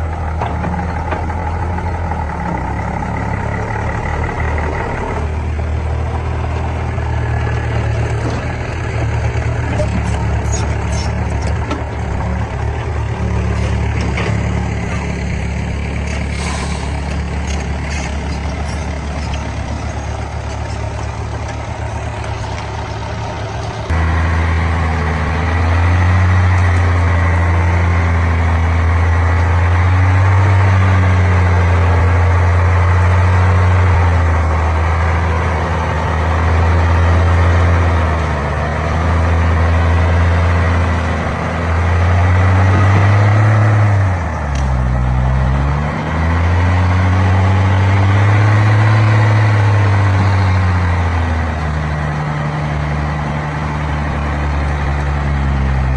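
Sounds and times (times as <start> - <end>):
heavy diesel engine running: 0.0 - 55.9.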